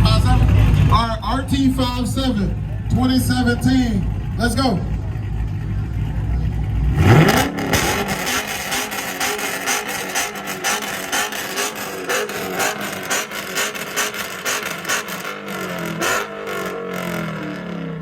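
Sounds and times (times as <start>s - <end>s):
engine revving: 0.0s - 18.0s
exhaust crackles and pops: 4.2s - 18.0s.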